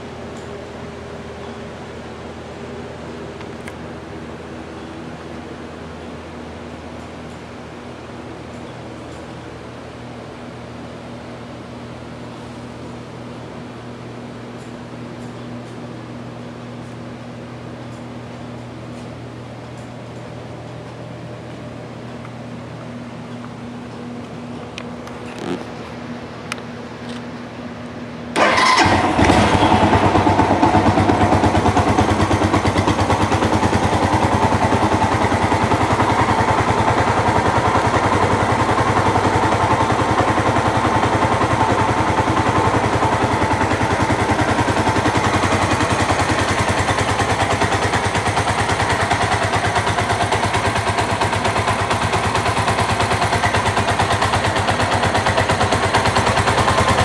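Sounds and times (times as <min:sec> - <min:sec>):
motorcycle engine starting and idling: 0:25.1 - 0:26.0, 0:28.3 - 0:57.0.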